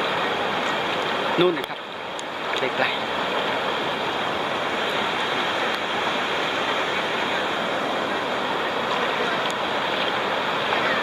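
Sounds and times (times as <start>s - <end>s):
waterfall rushing over rocks: 0.0s - 11.0s.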